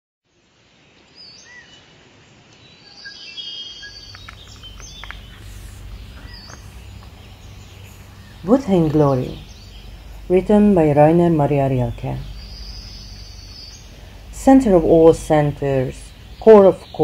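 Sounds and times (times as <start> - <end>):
birds chirping: 2.5 - 17.0
low steady hum: 3.8 - 17.0.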